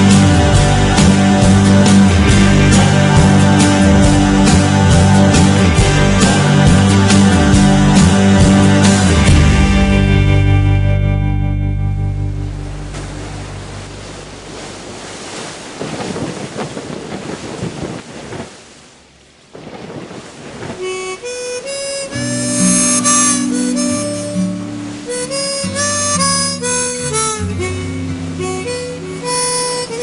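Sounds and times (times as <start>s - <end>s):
guitar and bass: 0.0s - 14.9s, 21.6s - 30.0s
harmonica playing: 20.8s - 30.0s.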